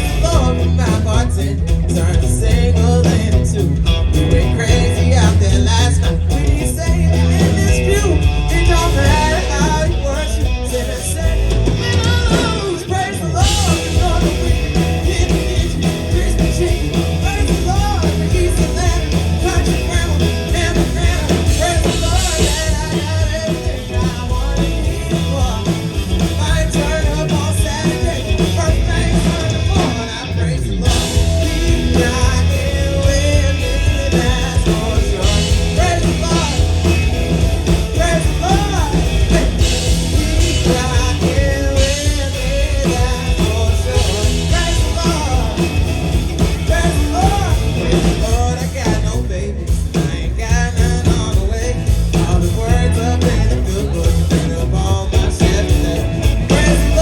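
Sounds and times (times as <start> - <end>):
live country-rock band: 0.0 - 57.0
man singing lead vocal: 0.0 - 57.0.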